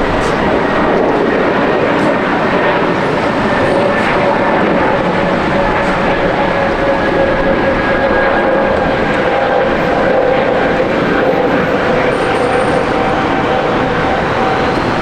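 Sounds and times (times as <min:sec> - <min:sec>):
engine whining tones: 0:00.0 - 0:15.0
jet engines roaring: 0:00.0 - 0:15.0.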